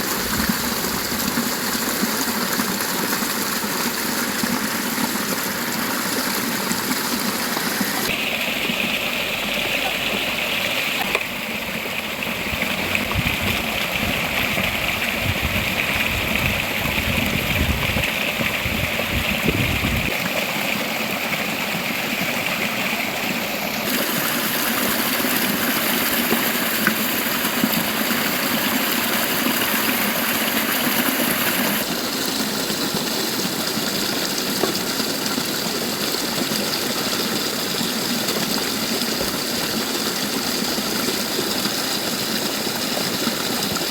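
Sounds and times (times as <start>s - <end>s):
river water rushing: 0.0s - 13.1s, 20.1s - 43.9s.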